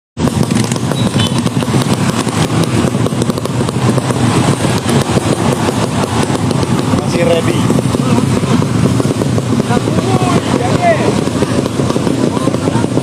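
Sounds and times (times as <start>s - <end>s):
racing motorcycle engine running: 0.2s - 13.0s.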